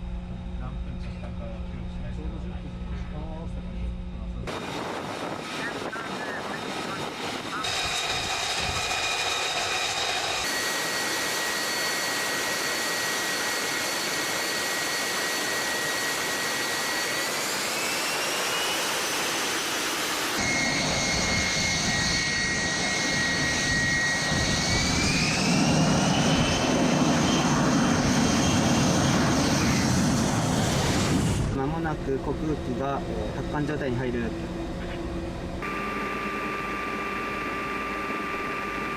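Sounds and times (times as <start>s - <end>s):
jet engine whine: 0.0s - 38.9s.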